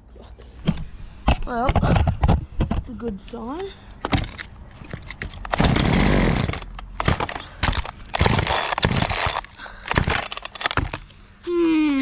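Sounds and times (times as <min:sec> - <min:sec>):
chainsaw sputtering: 0:05.5 - 0:10.8.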